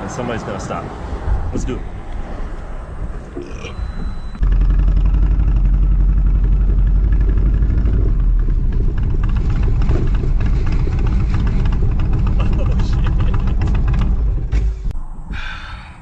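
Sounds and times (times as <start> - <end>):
motorcycle engine idling: 4.4 - 14.8.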